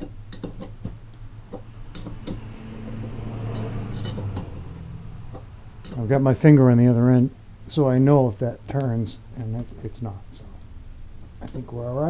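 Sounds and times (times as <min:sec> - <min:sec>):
low hum: 0:00.9 - 0:07.8
metal tools clinking: 0:01.6 - 0:02.5, 0:03.5 - 0:04.5.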